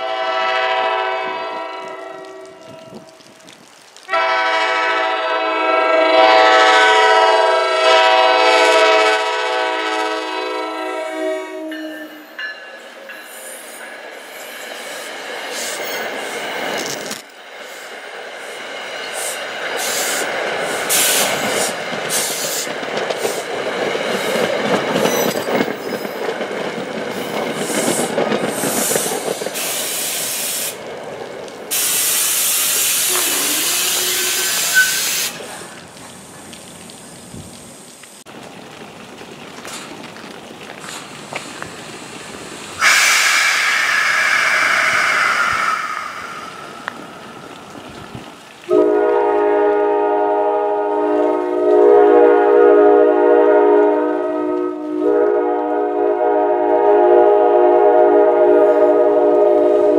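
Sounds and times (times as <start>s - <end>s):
train wheels clattering: 11.7s - 36.2s
loud steady hissing: 17.4s - 23.6s, 27.2s - 30.9s, 31.6s - 51.2s.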